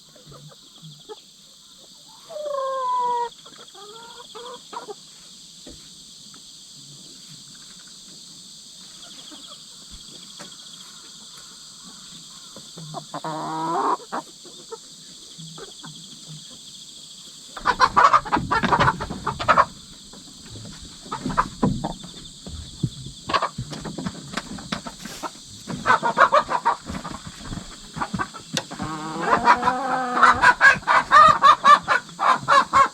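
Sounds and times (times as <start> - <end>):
insects chirring: 0.0 - 32.9
chickens scratching and rustling: 8.8 - 16.6, 17.5 - 32.9
hen calling: 25.0 - 32.9.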